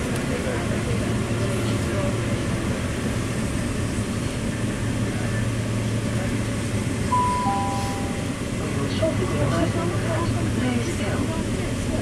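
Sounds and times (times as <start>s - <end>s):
train rushing along track: 0.0s - 12.0s.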